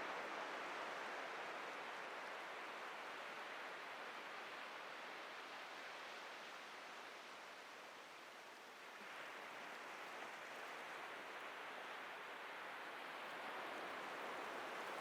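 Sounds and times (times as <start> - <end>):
ocean surf on a beach: 0.0 - 15.0.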